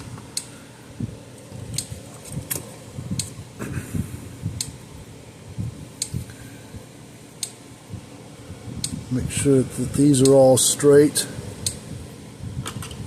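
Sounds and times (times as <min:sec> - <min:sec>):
low rumbling handling noise: 0:00.0 - 0:06.9.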